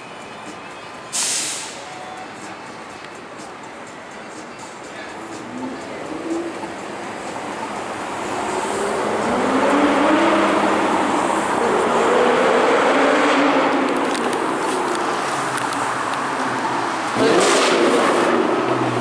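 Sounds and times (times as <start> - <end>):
car engine revving: 5.4 - 19.0.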